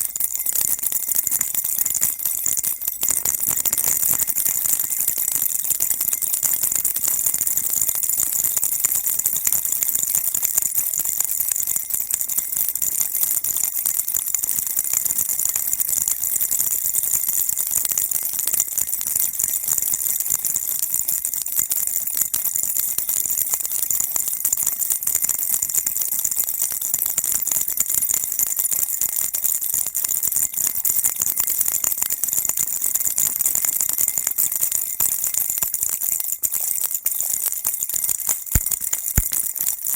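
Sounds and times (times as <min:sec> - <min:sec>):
baby rattle jingling: 0:00.0 - 0:06.8, 0:37.4 - 0:39.9.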